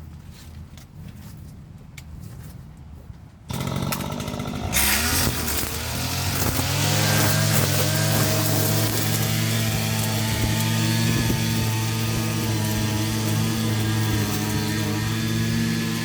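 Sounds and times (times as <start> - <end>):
lawn mower engine starting and revving: 3.5 - 16.0.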